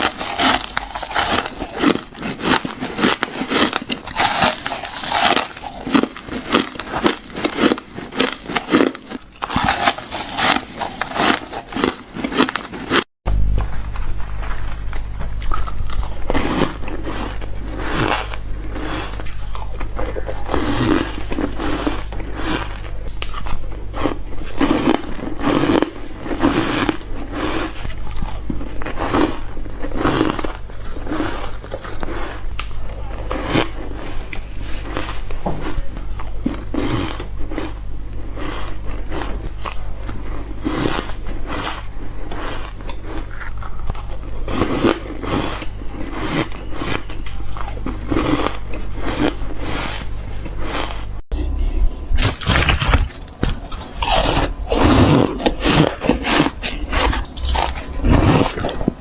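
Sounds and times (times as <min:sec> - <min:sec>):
ice crunching while chewed: 0:00.0 - 0:51.2, 0:52.2 - 0:59.0
steady low hum: 0:31.7 - 0:59.0.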